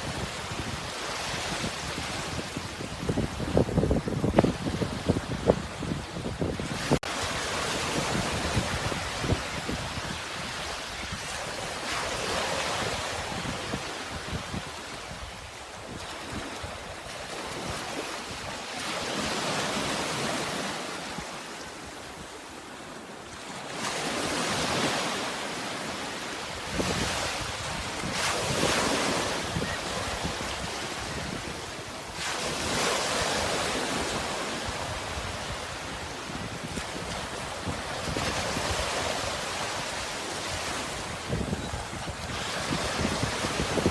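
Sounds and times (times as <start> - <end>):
wind rumble on microphone: 0.0 - 18.5, 26.6 - 43.9
sea waves breaking: 23.4 - 43.9.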